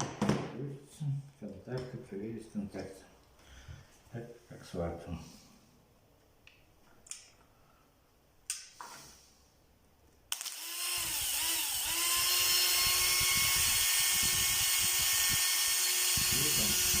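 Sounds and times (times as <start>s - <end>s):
power tool motor whining: 10.3s - 17.0s.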